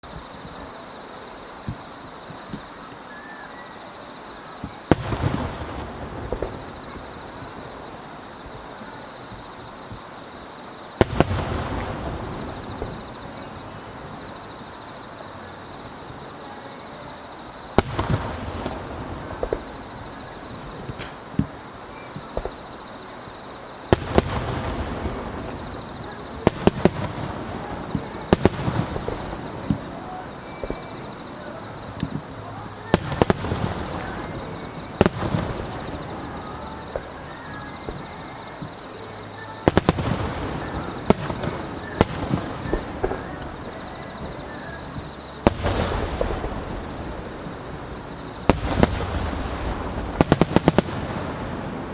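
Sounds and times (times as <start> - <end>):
firework crackling: 4.2 - 51.9
firework shells bursting: 17.4 - 38.8, 39.6 - 51.9.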